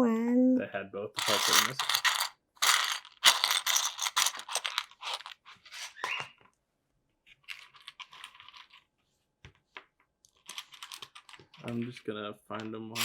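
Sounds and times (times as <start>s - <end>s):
plastic toy bricks clattering: 1.2s - 6.2s, 7.4s - 8.8s, 10.3s - 12.0s, 12.6s - 13.0s.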